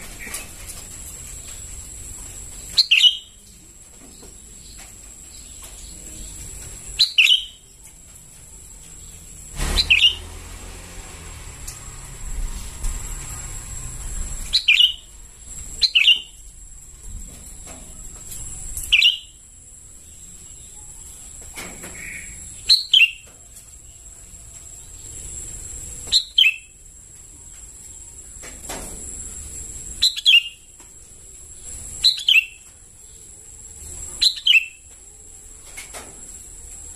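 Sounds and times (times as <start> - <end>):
bird chirping calls: 2.5 - 3.5, 4.1 - 8.0, 8.8 - 10.4, 14.4 - 16.4, 18.4 - 19.4, 20.0 - 23.3, 24.9 - 26.8, 30.0 - 30.7, 31.6 - 35.0
bird chirping sharply: 2.7 - 3.4, 7.0 - 7.6, 9.6 - 10.4, 14.5 - 15.1, 15.8 - 16.4, 18.9 - 19.4, 22.0 - 23.2, 26.1 - 26.8, 30.0 - 30.7, 32.0 - 32.6, 34.2 - 34.8.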